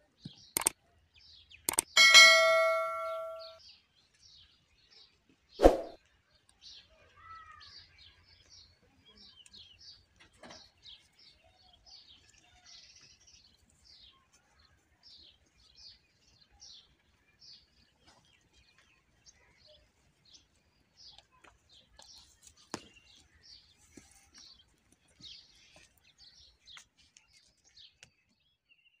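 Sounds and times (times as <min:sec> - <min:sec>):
small birds chirping: 0:00.0 - 0:29.0
clicks: 0:00.6 - 0:00.8, 0:01.7 - 0:03.6.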